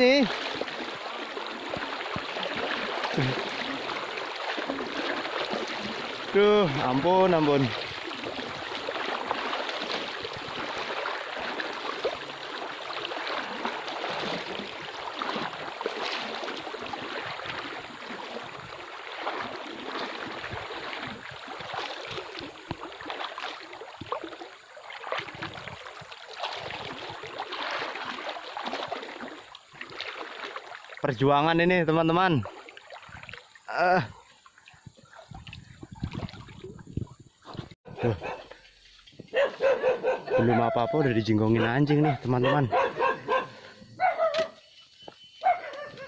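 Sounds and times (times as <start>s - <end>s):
person wading through water: 0.0s - 46.0s.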